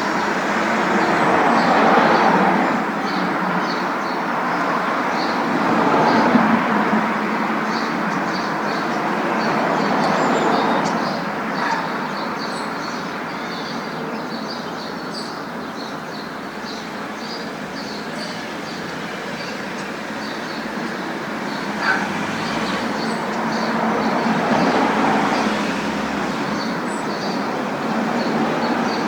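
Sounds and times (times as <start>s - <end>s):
car road noise: 15.9s - 29.0s.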